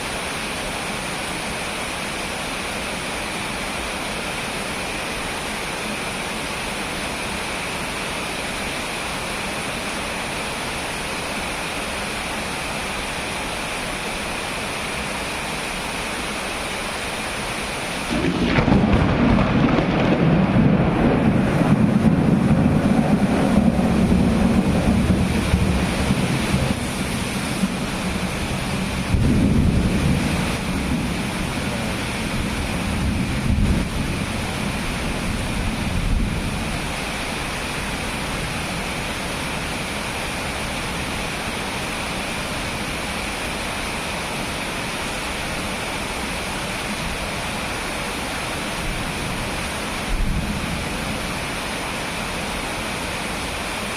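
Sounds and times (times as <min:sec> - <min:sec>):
steady rain: 0:00.0 - 0:53.9
thunder crack and rumble: 0:18.1 - 0:36.6.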